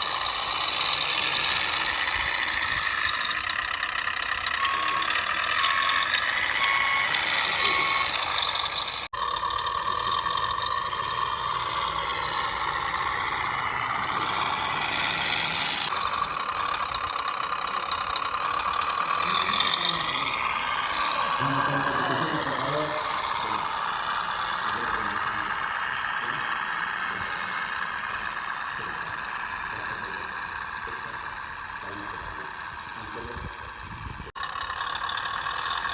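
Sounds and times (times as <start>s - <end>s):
toy truck motor whine: 0.0s - 35.9s
reverse beeper beeps: 4.6s - 8.4s.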